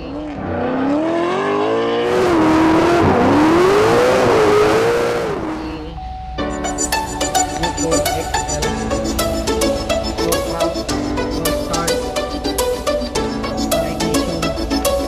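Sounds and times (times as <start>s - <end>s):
car engine revving: 0.0s - 6.0s.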